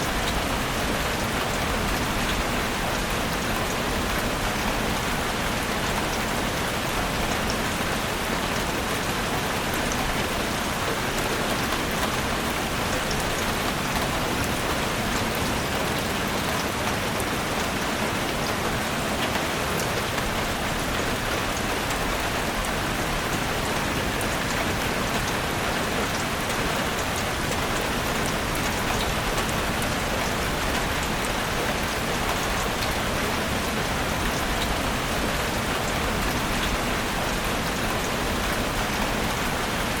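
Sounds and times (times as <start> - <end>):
rain falling in a forest: 0.0 - 40.0.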